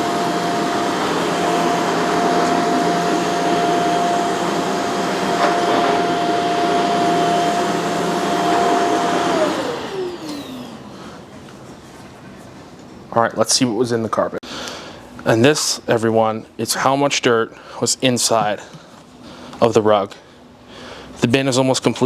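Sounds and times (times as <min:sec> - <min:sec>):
vacuum motor spinning down: 0:00.0 - 0:11.3
vacuum cleaner running: 0:00.0 - 0:11.8.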